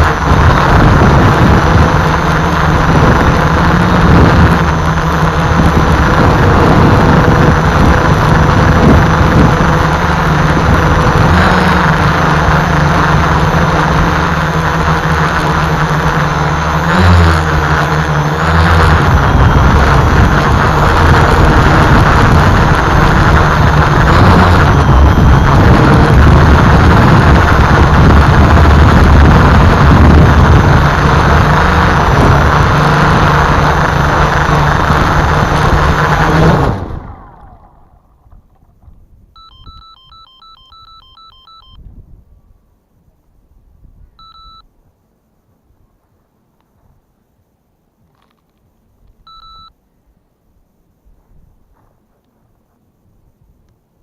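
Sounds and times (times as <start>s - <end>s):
wind buffeting microphone: 0.0s - 15.4s, 18.4s - 39.4s
drone motors whining: 0.0s - 41.8s.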